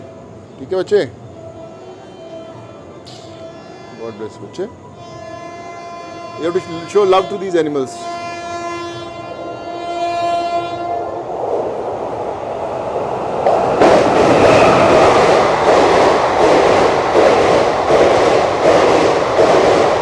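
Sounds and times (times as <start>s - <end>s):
train horn: 1.2s - 11.3s
train rumbling and clattering: 6.9s - 20.0s.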